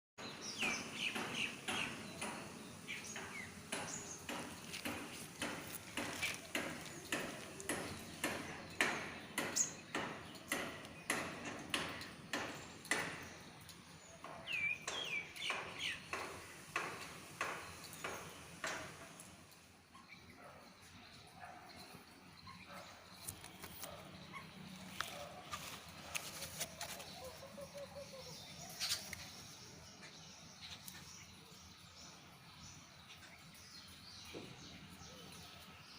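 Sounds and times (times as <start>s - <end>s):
birds chirping: 0.2s - 35.9s
sharp ringing knocks: 0.3s - 13.5s.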